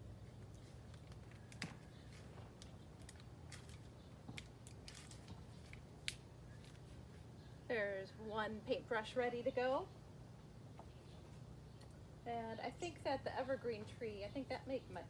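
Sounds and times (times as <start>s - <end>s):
clicks and rustles of sticks: 0.2s - 7.0s.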